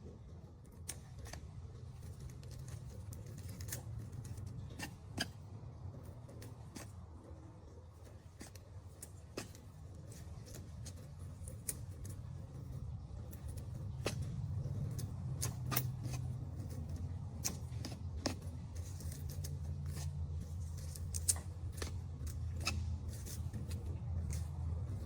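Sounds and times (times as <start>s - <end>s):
steady low hum: 0.0s - 25.0s
sharp clicks and snips: 8.4s - 12.4s, 13.3s - 25.0s.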